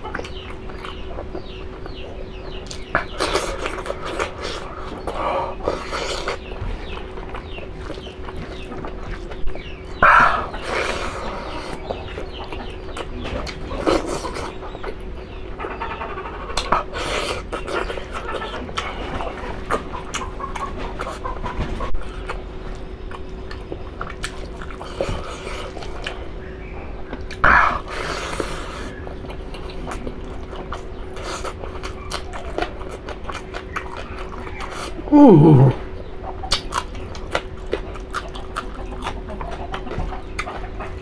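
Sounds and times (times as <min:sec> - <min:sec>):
low steady hum: 0:00.0 - 0:41.0
chewing and wet mouth clicks: 0:22.2 - 0:26.2, 0:27.1 - 0:35.0, 0:36.4 - 0:41.0
short falling vocal sound: 0:35.1 - 0:35.8.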